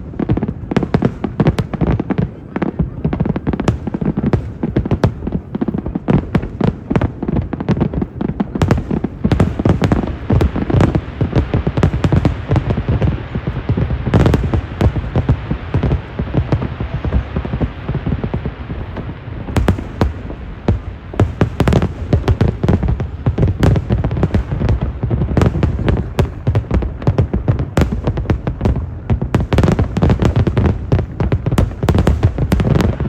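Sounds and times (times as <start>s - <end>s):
fireworks booms and crackling pops: 0.0s - 33.0s.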